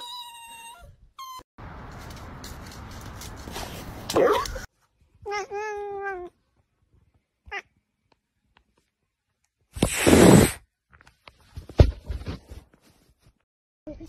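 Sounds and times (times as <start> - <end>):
cat hissing: 9.8 - 10.6.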